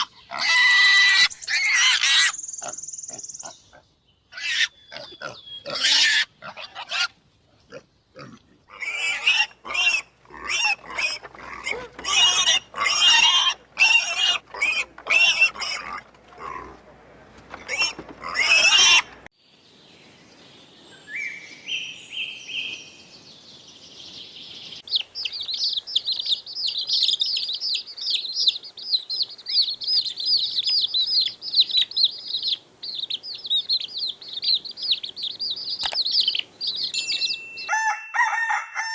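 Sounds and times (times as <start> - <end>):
small birds chirping: 0.0 - 6.5, 17.6 - 37.7
loud animal calls: 17.5 - 19.3.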